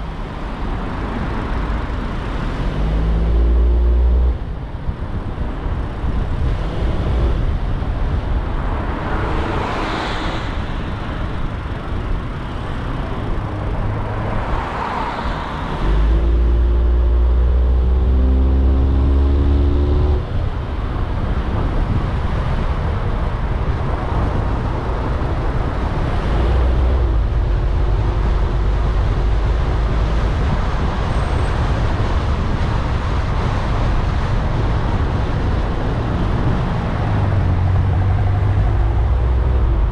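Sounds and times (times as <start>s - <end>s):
car driving in traffic: 0.0s - 39.9s
vehicles passing: 0.0s - 39.9s
engine accelerating: 15.8s - 20.3s.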